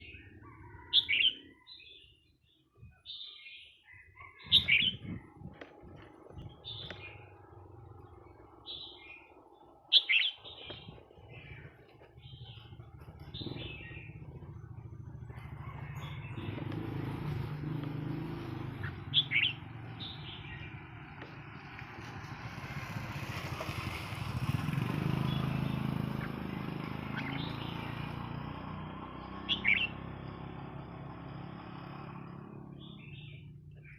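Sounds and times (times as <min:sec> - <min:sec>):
bulbul singing: 0:03.0 - 0:21.0, 0:24.8 - 0:30.7
vehicle engine running low: 0:04.2 - 0:33.9.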